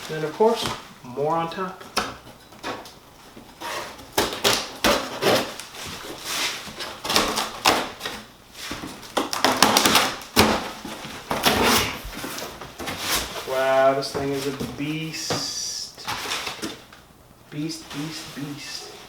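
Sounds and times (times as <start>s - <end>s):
packing material rustling: 1.6s - 14.8s.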